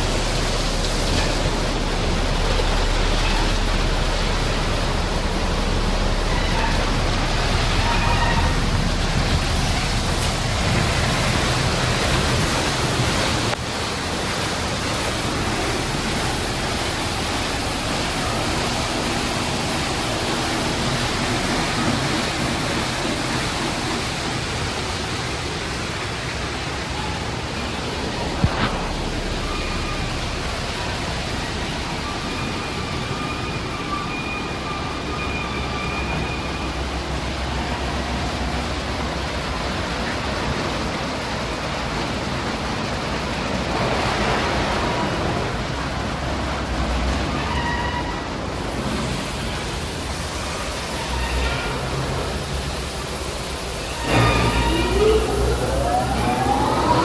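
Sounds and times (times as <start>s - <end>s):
car wash water spray: 0.0s - 33.9s, 36.3s - 57.0s
faint high whining tones: 50.2s - 57.0s.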